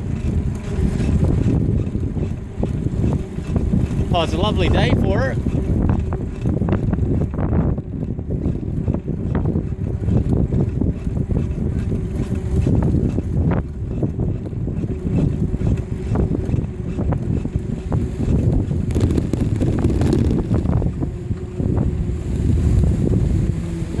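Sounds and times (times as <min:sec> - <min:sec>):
bicycle clicks and rattles: 0:00.0 - 0:22.0
wind rushing over microphone: 0:00.0 - 0:24.0.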